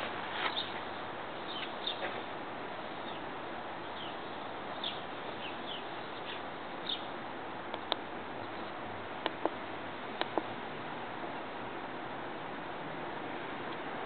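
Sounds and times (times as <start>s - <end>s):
birds chirping: 0.0s - 7.2s, 8.4s - 8.8s
steady hiss: 0.0s - 14.0s.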